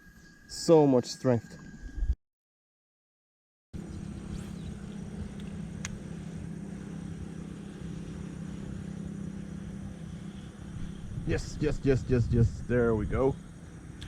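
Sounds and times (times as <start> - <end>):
engine drone: 3.8 - 14.0.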